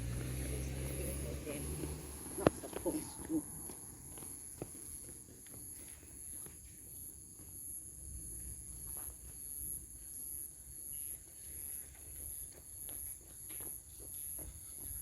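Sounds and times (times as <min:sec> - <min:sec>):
soft footsteps on trail: 0:00.0 - 0:09.8, 0:10.7 - 0:15.0
insects pulsing drone: 0:00.0 - 0:15.0.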